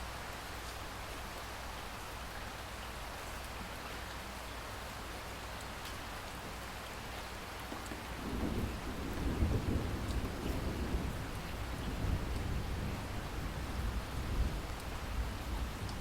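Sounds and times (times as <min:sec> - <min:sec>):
steady rainfall hiss: 0:00.0 - 0:16.0
raindrop ticks: 0:07.5 - 0:12.6, 0:14.3 - 0:15.0, 0:15.8 - 0:16.0.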